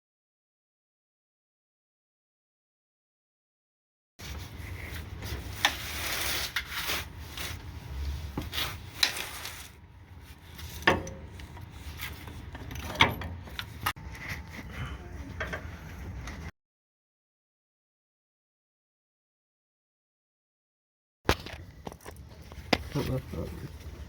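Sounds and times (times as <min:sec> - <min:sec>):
scraping and rubbing: 0:04.2 - 0:14.7.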